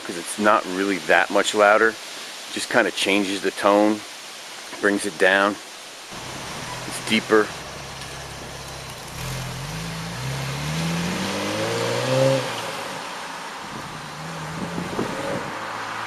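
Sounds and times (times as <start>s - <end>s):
car engine revving: 6.1s - 13.1s.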